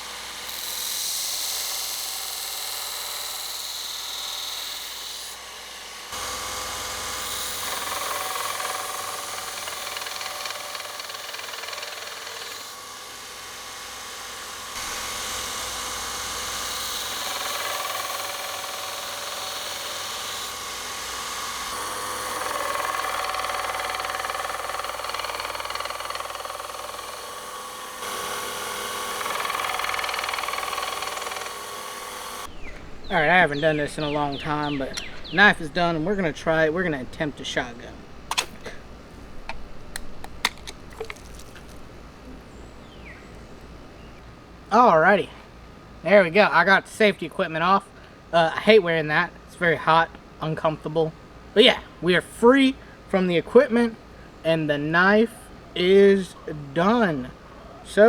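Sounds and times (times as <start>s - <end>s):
power grinder grinding steel: 0.0s - 37.8s.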